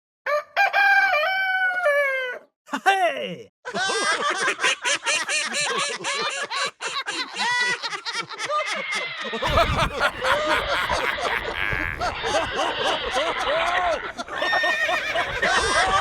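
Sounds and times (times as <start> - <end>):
high-pitched snickering laughter: 3.7 - 16.0.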